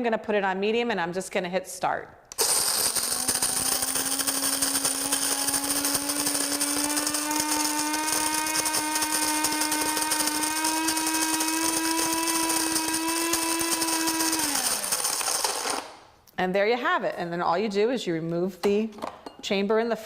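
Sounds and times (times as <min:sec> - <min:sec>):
electric coffee grinder running: 0:02.4 - 0:16.0.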